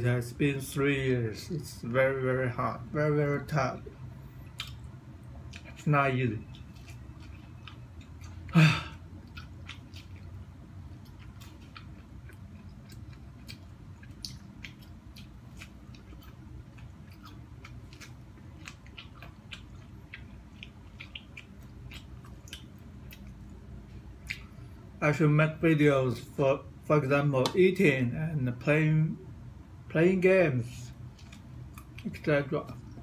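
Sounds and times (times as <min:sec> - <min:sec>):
low steady hum: 0:00.0 - 0:33.0
corn being chewed: 0:05.5 - 0:08.6, 0:09.2 - 0:23.6, 0:31.0 - 0:33.0.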